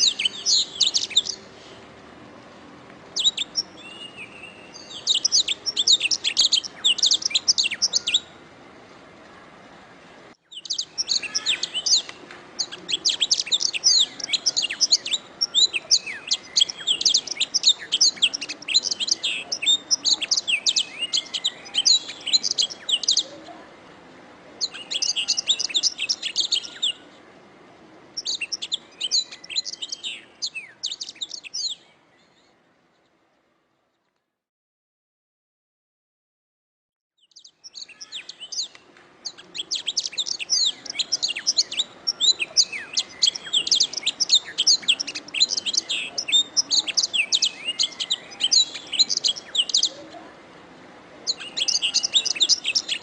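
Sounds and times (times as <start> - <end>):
canary singing trills: 0.0 - 1.6, 3.2 - 8.4, 10.4 - 23.6, 24.6 - 27.0, 28.1 - 32.5, 37.2 - 50.2, 51.2 - 53.0.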